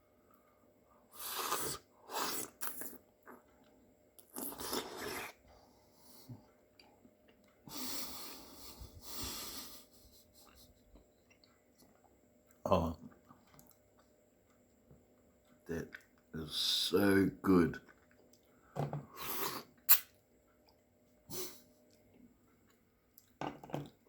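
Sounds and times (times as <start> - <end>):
wet slurping and sucking: 1.1 - 3.0, 4.3 - 5.4
chewing: 11.0 - 14.6, 17.8 - 18.6.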